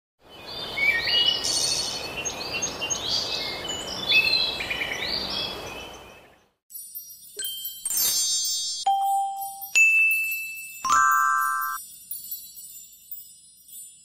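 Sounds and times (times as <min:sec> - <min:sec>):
birds chirping: 0:00.3 - 0:06.6.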